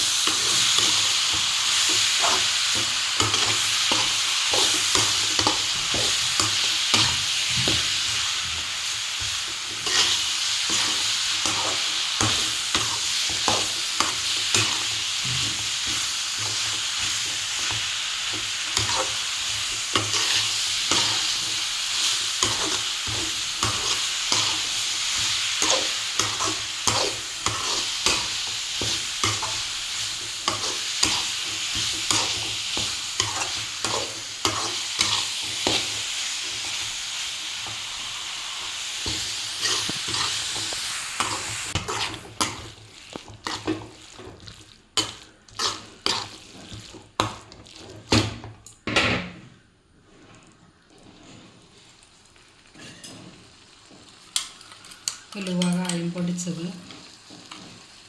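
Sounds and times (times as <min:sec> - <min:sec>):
food sizzling in hot oil: 0:00.0 - 0:48.8, 0:50.1 - 0:58.0
spoon knocking and scraping pan: 0:00.0 - 0:49.6, 0:52.7 - 0:58.0.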